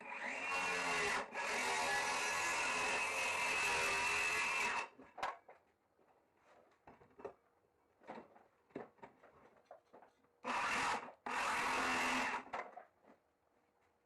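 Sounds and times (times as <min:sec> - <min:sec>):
power tool running: 0:10.5 - 0:12.4.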